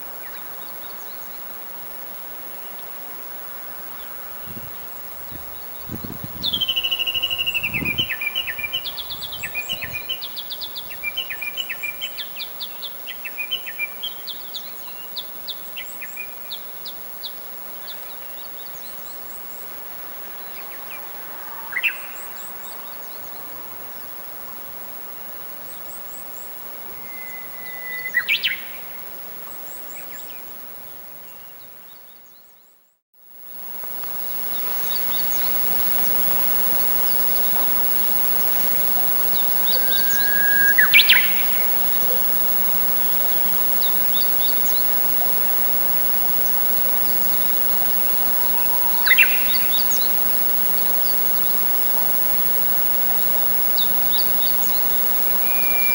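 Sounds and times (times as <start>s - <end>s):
outdoor background noise: 0.0s - 55.9s
faint high bird chirps: 4.0s - 16.6s, 25.7s - 30.5s, 34.5s - 55.9s
warbler repeated slowing notes: 34.1s - 55.9s.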